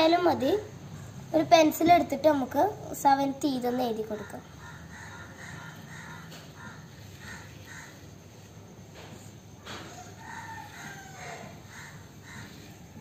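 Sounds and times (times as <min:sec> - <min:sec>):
faint bird calls: 0:04.0 - 0:13.0.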